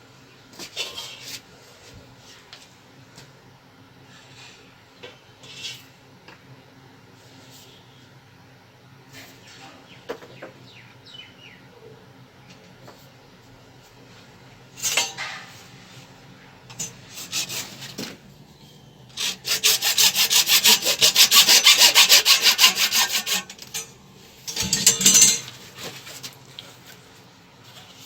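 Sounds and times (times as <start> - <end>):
hand saw strokes: 16.8 - 18.2, 19.2 - 23.9.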